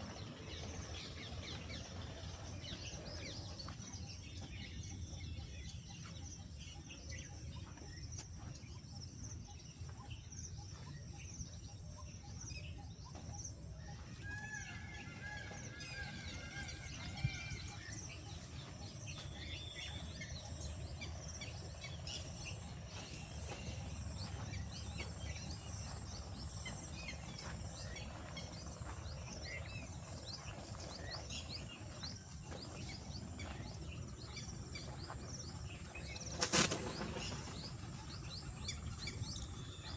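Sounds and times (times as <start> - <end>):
birds chirping: 0.0 - 39.9
low background rumble: 14.6 - 36.4.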